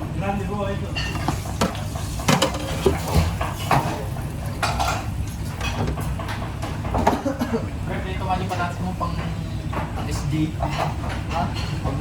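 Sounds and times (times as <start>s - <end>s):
low background hum: 0.0s - 12.0s
pans and utensils clattering: 0.9s - 7.7s, 9.2s - 12.0s.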